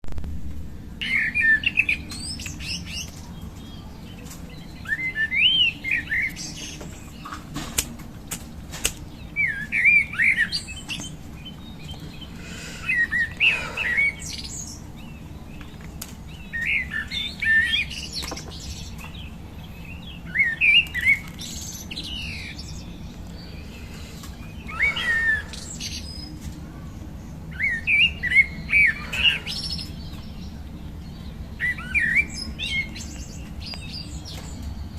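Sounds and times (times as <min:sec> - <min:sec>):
steady low hum: 0:00.1 - 0:34.9
songbird singing: 0:00.6 - 0:34.9.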